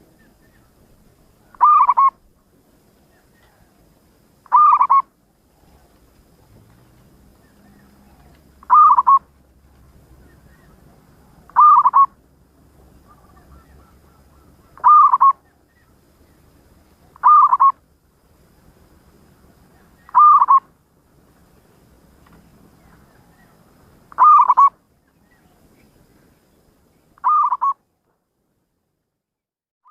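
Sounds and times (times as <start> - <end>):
dove cooing: 1.4 - 2.3, 4.4 - 6.0, 7.4 - 9.3, 10.2 - 12.2, 12.9 - 15.8, 17.1 - 17.8, 19.8 - 20.7, 23.0 - 24.8, 27.2 - 27.8.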